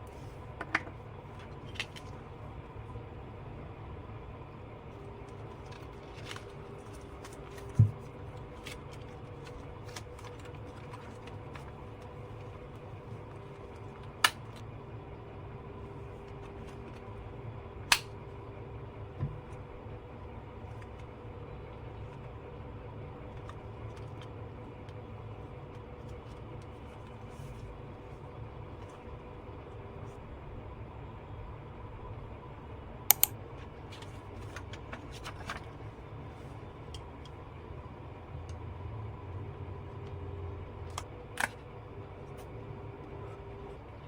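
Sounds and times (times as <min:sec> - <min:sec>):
low room hum: 0:00.0 - 0:44.0
paper rustling: 0:05.5 - 0:12.5, 0:34.0 - 0:35.8.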